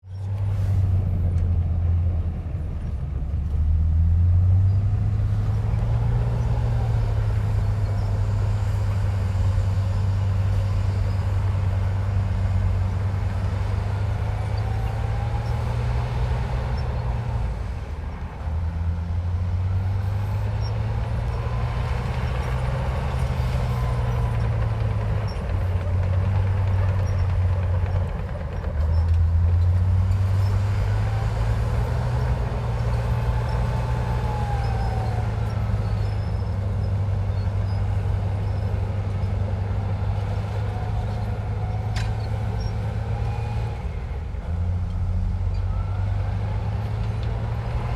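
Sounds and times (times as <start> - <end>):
bulldozer diesel engine droning: 0.0 - 47.9.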